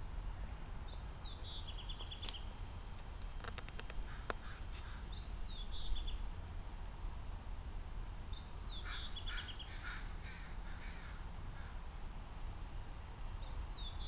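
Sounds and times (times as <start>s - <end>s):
birds calling: 0.8s - 2.6s, 3.8s - 6.3s, 8.2s - 11.8s, 13.4s - 14.0s
short harsh bird calls: 8.4s - 11.8s.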